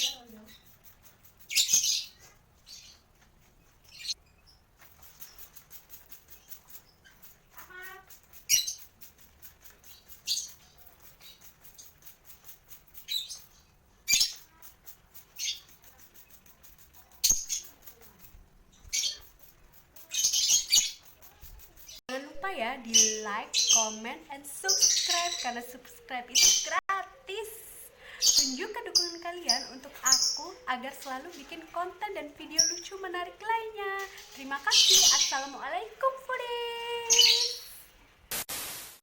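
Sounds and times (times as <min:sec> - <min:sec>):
bird chirp: 0:00.0 - 0:22.0, 0:22.7 - 0:26.8, 0:28.0 - 0:31.6, 0:32.2 - 0:37.8
bird wings fluttering: 0:00.0 - 0:22.0
water spray hissing: 0:04.8 - 0:22.0, 0:38.3 - 0:39.0.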